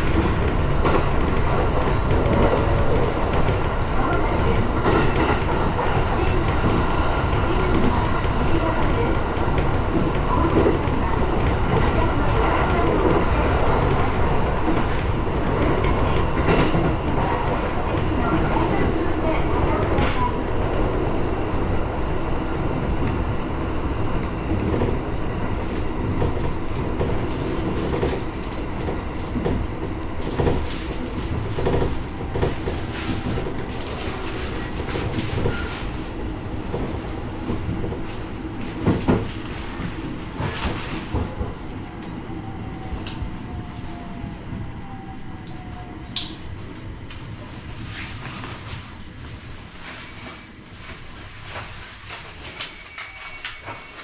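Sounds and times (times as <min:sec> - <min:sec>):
train running noise: 0:00.0 - 0:54.0.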